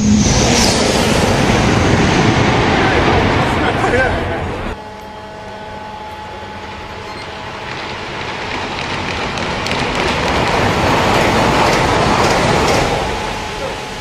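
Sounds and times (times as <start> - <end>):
high-speed train rushing past: 0.0 - 14.0
faint steady tones: 4.4 - 9.9.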